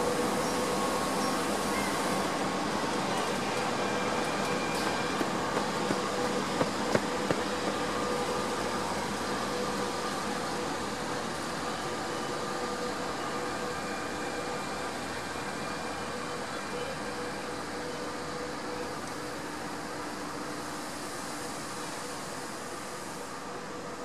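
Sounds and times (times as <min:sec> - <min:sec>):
train rolling rumble: 0:00.0 - 0:12.1
train hum: 0:00.0 - 0:24.0.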